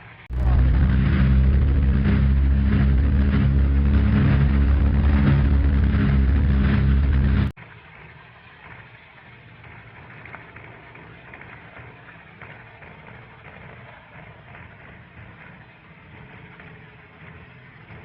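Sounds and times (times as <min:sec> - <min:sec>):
piston aircraft engines running: 0:00.3 - 0:07.5.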